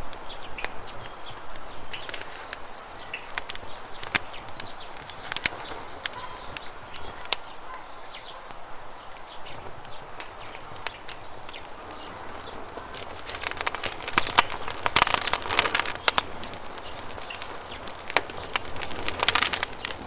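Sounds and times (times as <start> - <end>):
faint bird chirps: 0.0 - 18.1
burning wood popping: 0.0 - 20.0
campfire crackling: 0.0 - 20.0.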